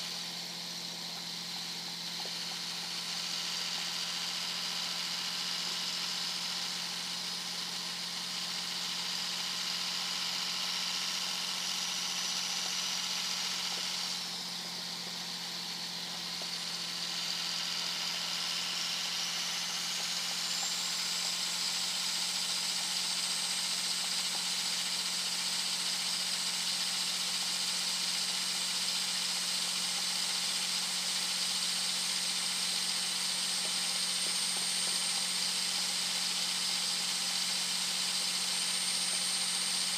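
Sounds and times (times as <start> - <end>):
turbocharger whistle: 0.0 - 24.4
diesel engine drone: 0.0 - 25.0.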